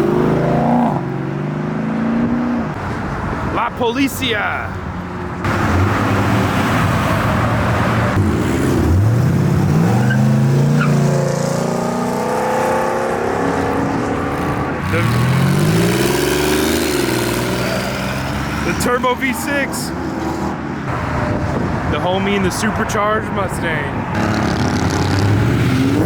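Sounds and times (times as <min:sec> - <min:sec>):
car engine accelerating hard: 0:00.0 - 0:02.9, 0:05.4 - 0:19.0, 0:24.1 - 0:26.0.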